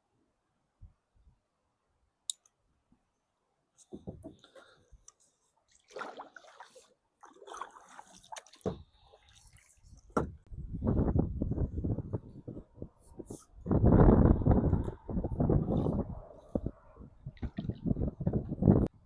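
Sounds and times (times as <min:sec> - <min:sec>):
water splashing and sloshing: 0:03.9 - 0:11.1, 0:14.5 - 0:18.9.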